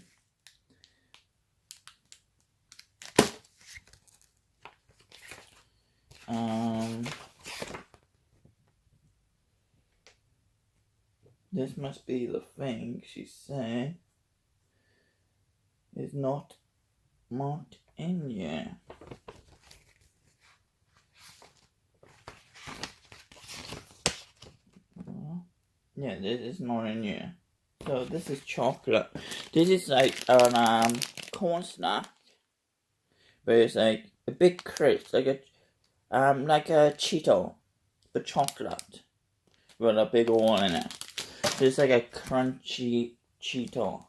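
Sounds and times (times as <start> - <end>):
packaging ripping: 1.7 - 4.3, 29.2 - 32.3, 34.5 - 35.1, 40.3 - 42.4
snack packaging crinkling: 1.7 - 4.3, 28.0 - 32.3, 34.5 - 35.2, 39.5 - 42.4.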